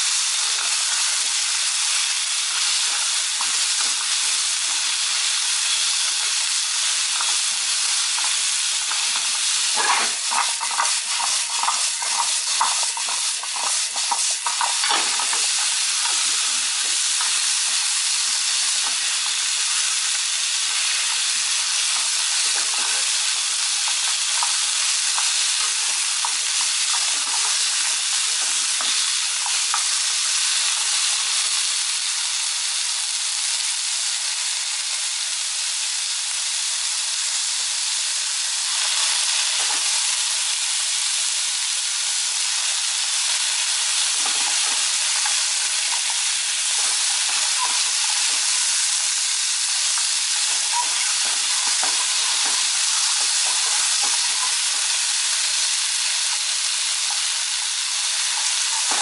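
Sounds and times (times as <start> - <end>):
zucchini sizzling in a frying pan: 0.0 - 59.0
stirring clicks and knocks: 2.6 - 30.0, 43.9 - 55.1.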